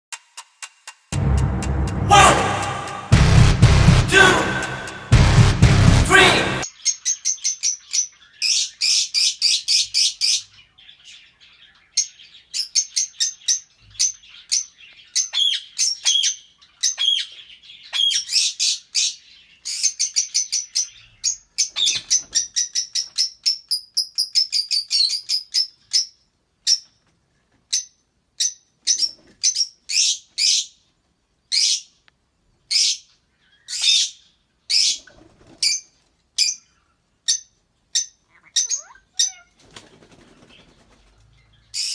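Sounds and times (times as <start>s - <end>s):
lovebirds chirping: 36.4s - 41.9s.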